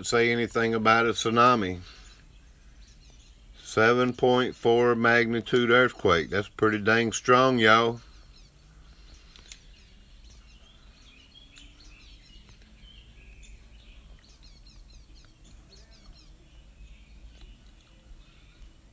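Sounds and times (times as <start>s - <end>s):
birds chirping: 0.0s - 18.9s
low steady hum: 0.0s - 18.9s.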